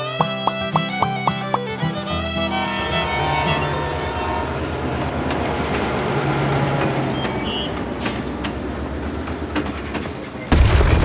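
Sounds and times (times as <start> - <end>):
sharp clicks: 0.1 - 1.7.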